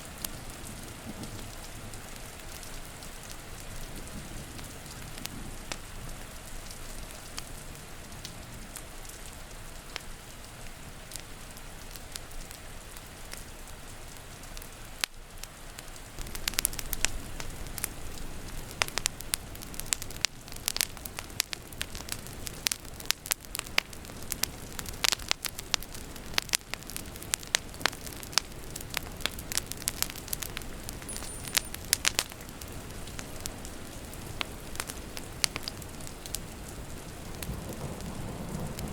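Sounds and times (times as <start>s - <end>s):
rain hiss: 0.0s - 38.9s
wood fire crackling and popping: 14.6s - 38.9s.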